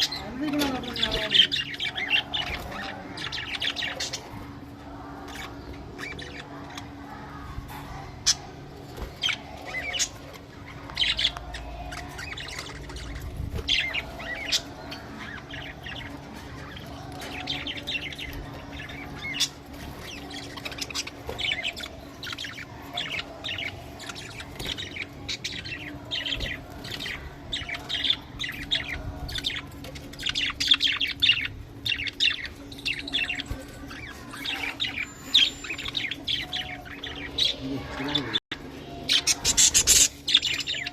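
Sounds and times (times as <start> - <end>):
steady low hum: 0.0 - 40.9
budgerigars chirping: 9.2 - 40.9.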